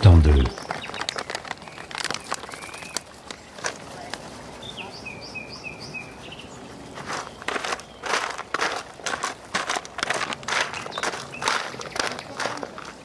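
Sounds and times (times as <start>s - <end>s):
powder rustling into plastic bucket: 0.6s - 3.8s.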